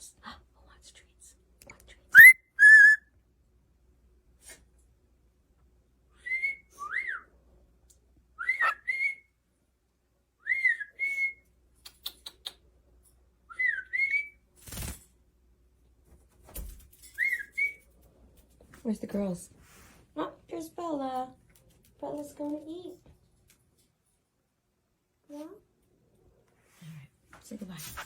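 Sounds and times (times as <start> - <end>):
cockatiel whistling: 2.2 - 3.0.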